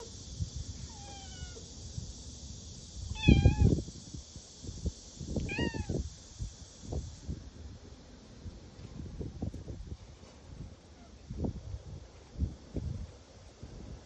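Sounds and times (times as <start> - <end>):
cat meowing: 0.9 - 1.6, 3.1 - 3.7, 5.4 - 6.0.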